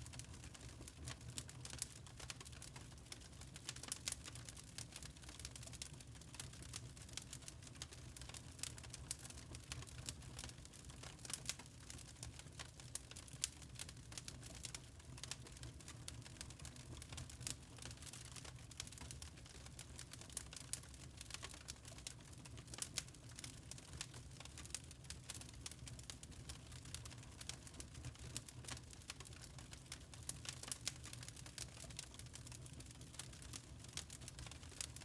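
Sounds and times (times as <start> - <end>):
charcoal crackling and popping: 0.0 - 35.0.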